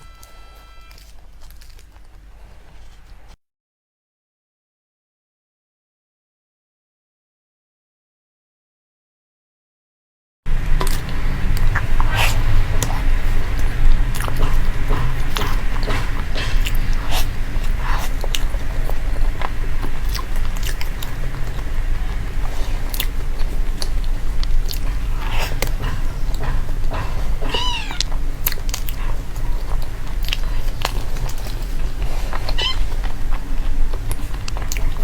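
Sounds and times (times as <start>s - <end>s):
short squeaky call: 0.0s - 1.2s, 27.5s - 28.1s, 32.6s - 32.9s
chewing and crunching food: 0.0s - 3.4s, 10.8s - 35.0s.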